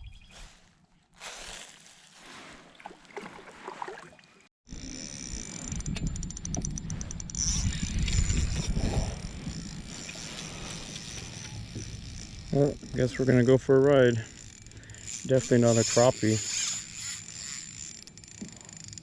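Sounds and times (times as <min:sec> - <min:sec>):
quiet water: 0:02.1 - 0:19.0
fishing reel drag clicking: 0:04.7 - 0:19.0.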